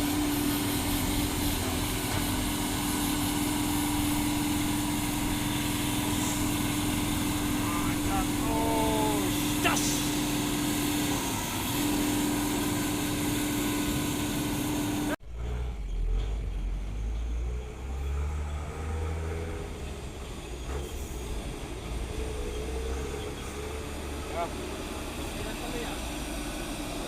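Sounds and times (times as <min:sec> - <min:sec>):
truck engine under load: 0:00.0 - 0:27.0.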